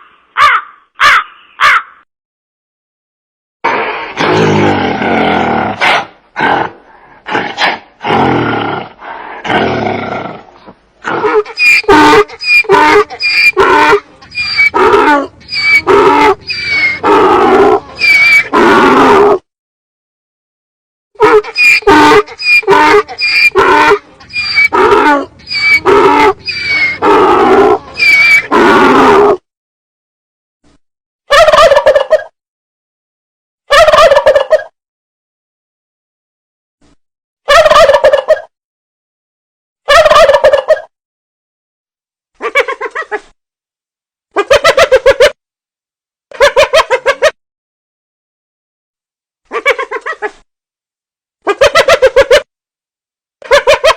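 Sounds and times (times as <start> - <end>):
large animal roaring: 3.8 - 11.3, 13.6 - 19.4, 24.7 - 29.4
animal calling: 11.0 - 19.4, 21.2 - 29.4.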